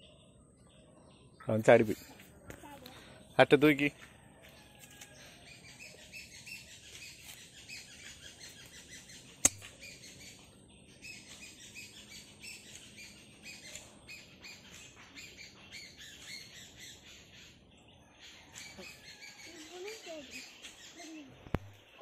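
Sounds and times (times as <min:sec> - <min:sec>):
small birds chirping: 0:00.0 - 0:22.0
sharp click: 0:09.4 - 0:09.8.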